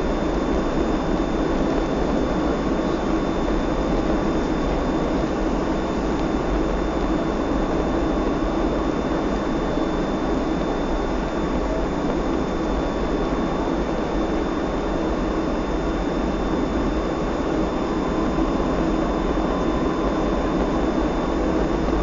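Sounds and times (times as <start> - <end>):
high steady whine: 0.0 - 22.0
airplane cabin rumble: 10.3 - 22.0.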